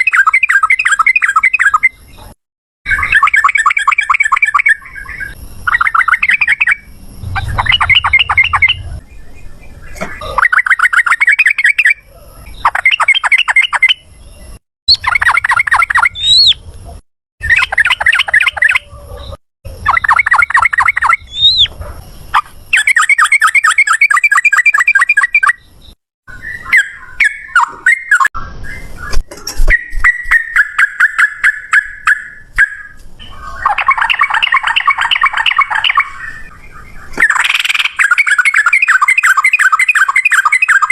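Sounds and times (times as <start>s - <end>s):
bulbul chattering trilled song: 2.9s - 9.4s, 14.9s - 16.6s, 19.8s - 21.7s, 33.6s - 36.2s, 37.2s - 40.9s.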